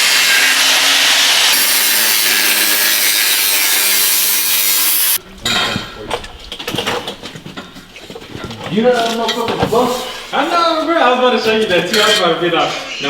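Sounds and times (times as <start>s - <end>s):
reciprocating saw cutting metal pipe: 0.0s - 5.2s.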